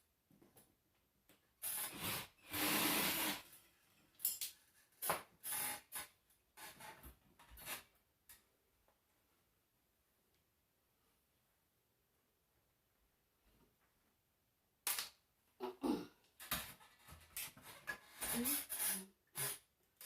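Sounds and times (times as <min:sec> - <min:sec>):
rubbing and scraping: 0:16.6 - 0:19.5.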